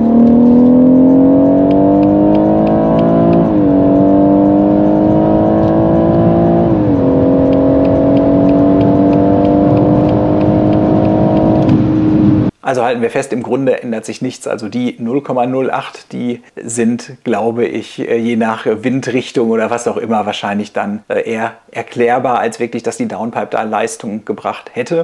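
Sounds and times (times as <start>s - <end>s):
car engine accelerating: 0.0s - 12.6s.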